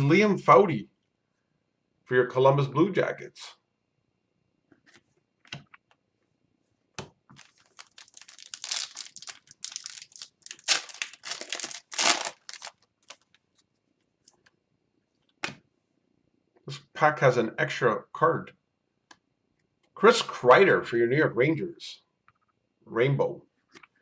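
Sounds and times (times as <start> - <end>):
foil wrapper tearing and crinkling: 7.4 - 13.3.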